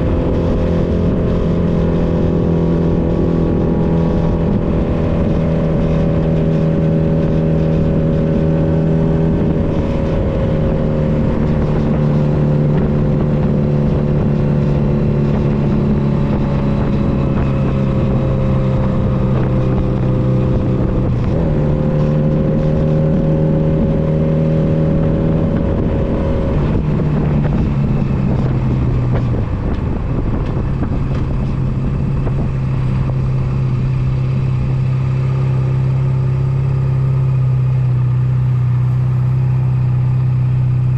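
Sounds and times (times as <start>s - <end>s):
wind rush: 0.0s - 37.8s
motorcycle engine running: 0.0s - 40.9s.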